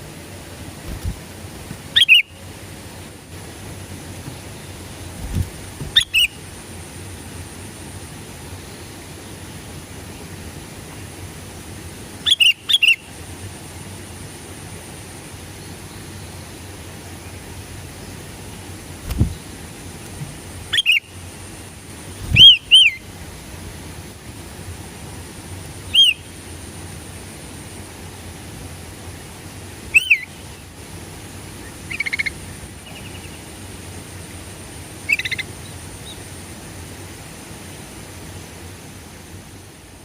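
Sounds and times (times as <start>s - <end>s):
steady background hiss: 0.0s - 40.0s
bird calling: 0.9s - 2.5s, 4.3s - 6.4s, 12.2s - 13.1s, 20.6s - 21.2s, 22.2s - 23.0s, 25.9s - 26.3s, 29.9s - 30.5s, 31.6s - 33.4s, 35.0s - 36.2s.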